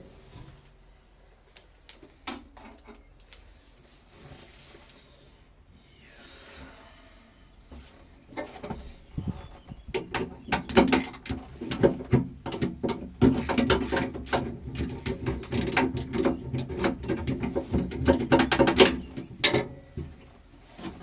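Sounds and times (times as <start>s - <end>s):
hand tools clanking on metal: 9.9s - 19.8s.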